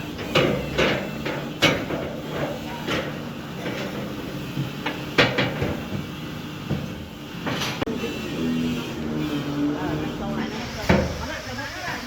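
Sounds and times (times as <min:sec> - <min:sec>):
sharp knocks and clanks: 0:00.0 - 0:07.9, 0:10.8 - 0:11.3
machinery humming: 0:00.0 - 0:12.0.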